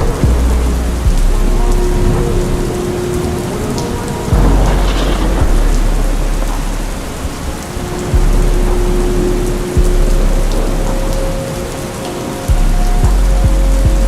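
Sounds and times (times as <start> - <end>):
deep bass notes: 0.0 - 11.8, 12.5 - 14.0
long held synth tones: 0.0 - 14.0
steady rain: 0.0 - 14.0
slowed reverb-heavy rap track: 4.2 - 14.0.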